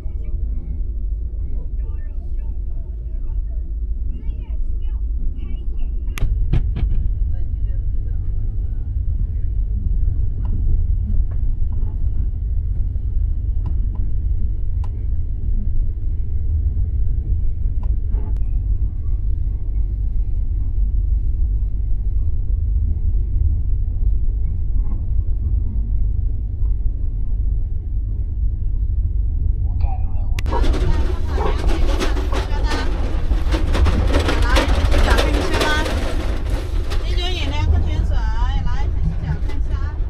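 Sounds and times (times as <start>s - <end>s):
train carriage rumble: 0.0s - 40.0s
faint clicks and knocks: 30.4s - 40.0s.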